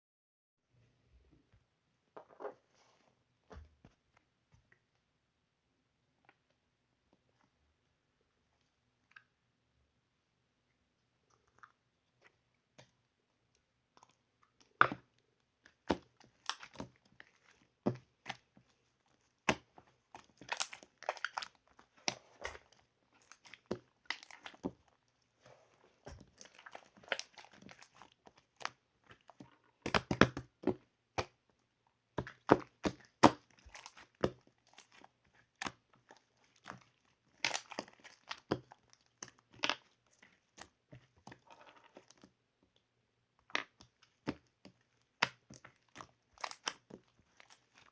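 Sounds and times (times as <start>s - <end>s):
chewing: 11.3s - 12.4s, 16.2s - 29.7s, 44.0s - 47.9s.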